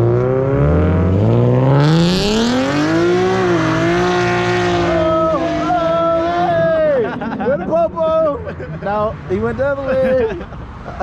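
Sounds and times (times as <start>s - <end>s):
car engine revving: 0.0s - 7.4s.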